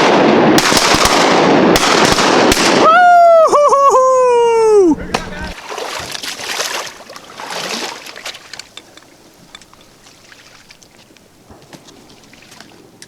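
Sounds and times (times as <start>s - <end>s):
water splashing: 4.5s - 13.0s
water dripping and trickling: 5.5s - 13.0s.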